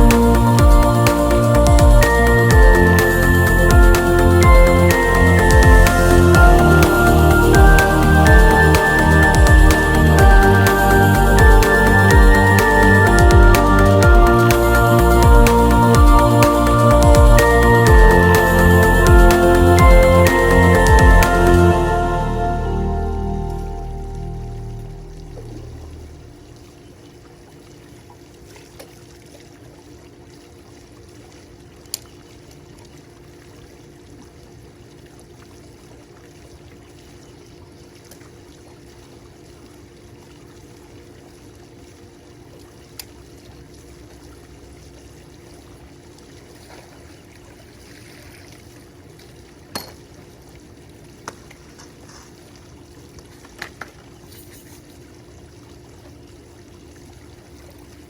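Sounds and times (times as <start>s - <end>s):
low hum: 0.0s - 26.9s
water pouring and trickling: 0.0s - 58.0s.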